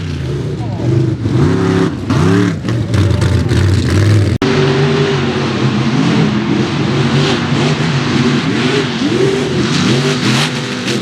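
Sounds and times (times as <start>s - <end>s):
truck engines revving: 0.0s - 11.0s.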